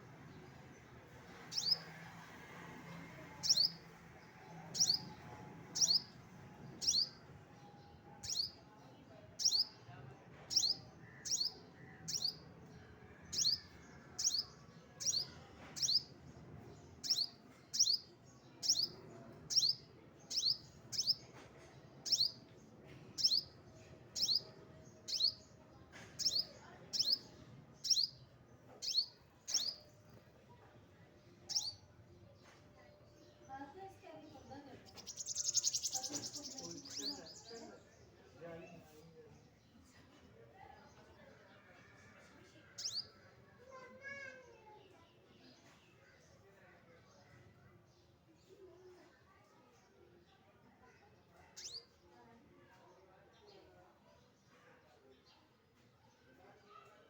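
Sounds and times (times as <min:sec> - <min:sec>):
small bird chirping: 0:01.1 - 0:02.0, 0:03.2 - 0:04.0, 0:04.6 - 0:07.3, 0:08.2 - 0:08.6, 0:09.4 - 0:09.8, 0:10.5 - 0:12.5, 0:13.3 - 0:16.2, 0:17.0 - 0:21.4, 0:22.0 - 0:22.5, 0:23.2 - 0:30.3, 0:31.4 - 0:32.6, 0:34.2 - 0:37.9, 0:42.8 - 0:43.2, 0:51.5 - 0:52.0.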